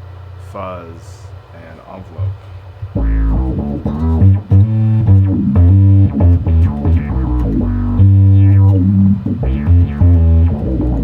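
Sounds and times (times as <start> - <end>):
fuzzy electric bass riff: 2.2 - 11.0.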